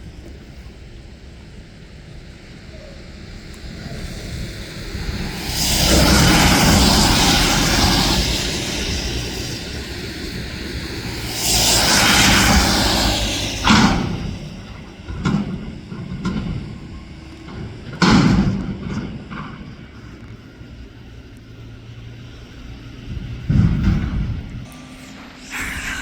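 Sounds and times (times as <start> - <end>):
garbage truck engine running: 1.0 - 26.0
loud rushing surge: 3.7 - 14.8, 24.7 - 26.0.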